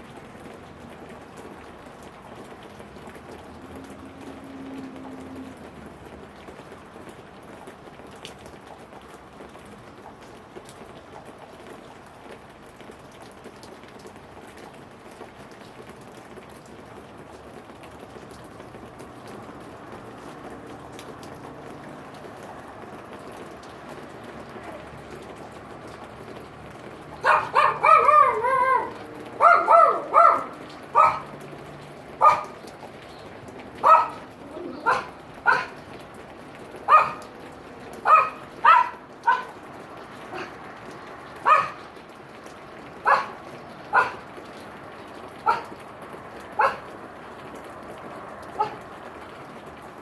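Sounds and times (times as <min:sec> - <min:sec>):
steady rain: 0:00.0 - 0:50.0
dog yapping: 0:27.1 - 0:31.4, 0:32.2 - 0:32.7, 0:33.8 - 0:35.8, 0:36.9 - 0:37.4, 0:38.0 - 0:39.6, 0:40.3 - 0:40.6, 0:41.4 - 0:41.9, 0:43.0 - 0:44.2, 0:45.4 - 0:45.8, 0:46.5 - 0:46.9, 0:48.5 - 0:48.8.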